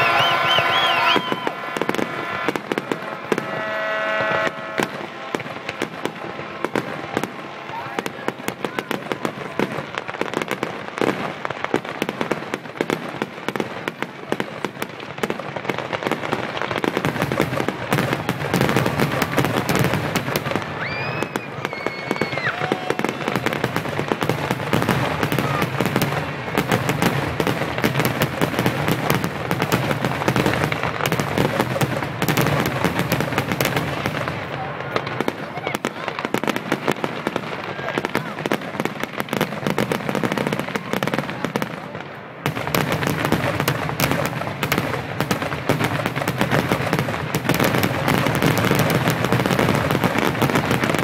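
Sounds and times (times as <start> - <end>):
firework whistle: 0.0 - 8.1, 18.4 - 23.6
fireworks bangs and crackling: 0.0 - 51.0.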